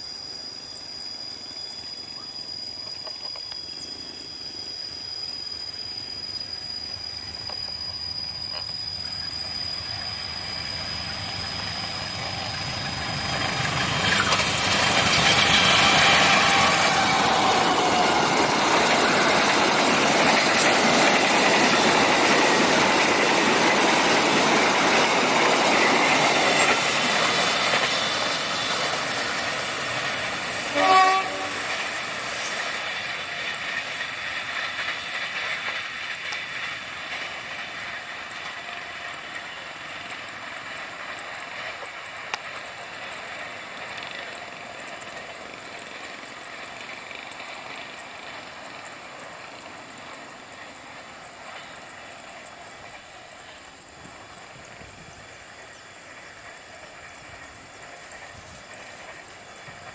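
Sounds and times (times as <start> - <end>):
train rumble and wheel clatter: 0.0 - 59.9
train horn blast: 30.7 - 31.8.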